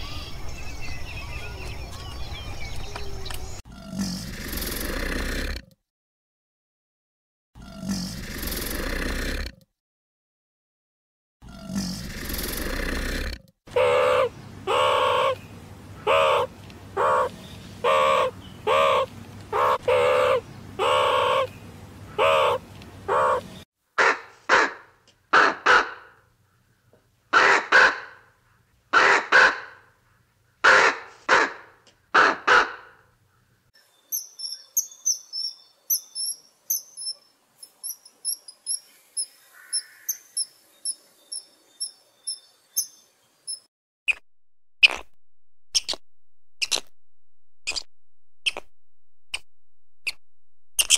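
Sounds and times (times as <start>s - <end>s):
raven croaking: 11.5s - 15.4s, 16.0s - 21.5s, 22.1s - 26.2s
meerkat calls: 13.7s - 15.4s, 16.0s - 21.5s, 22.2s - 26.0s
low hum: 44.1s - 50.9s.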